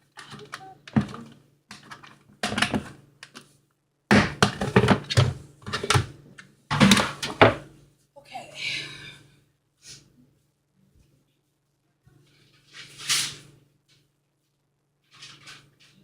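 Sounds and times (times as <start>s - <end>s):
hard plastic knocks and clatter: 0.1s - 3.4s.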